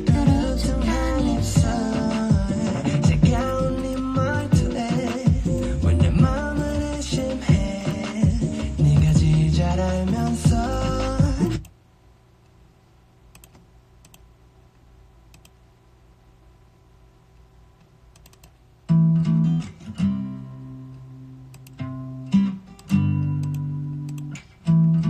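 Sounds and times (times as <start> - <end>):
faint clicks: 15.3 - 15.6.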